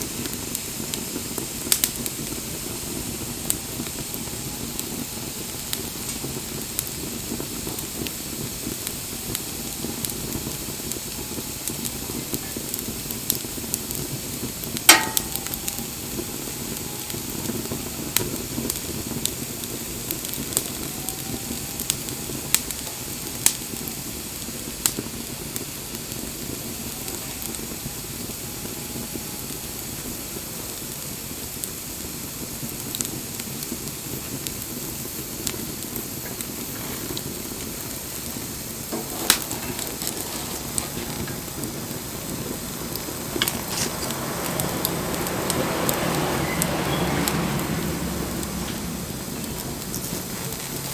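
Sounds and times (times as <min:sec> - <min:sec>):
bonfire crackling and hissing: 0:00.0 - 0:50.9
loud fire pop: 0:12.7 - 0:16.8, 0:38.2 - 0:42.0.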